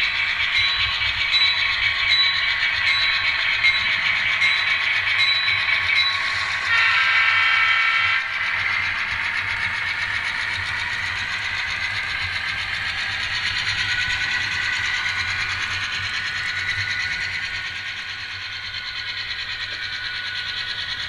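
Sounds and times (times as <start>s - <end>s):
tinny model diesel engine sound: 0.0s - 21.0s.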